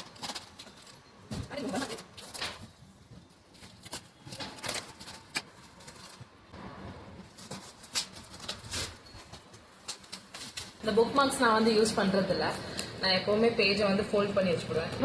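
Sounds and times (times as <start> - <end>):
packaging rustling and crackling: 0.0 - 11.4.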